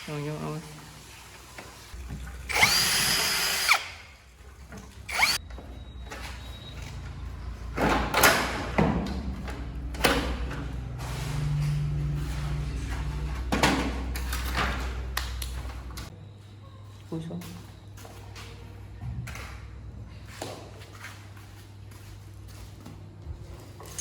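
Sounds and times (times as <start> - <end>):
power drill whine: 2.5 - 4.0, 5.1 - 5.4.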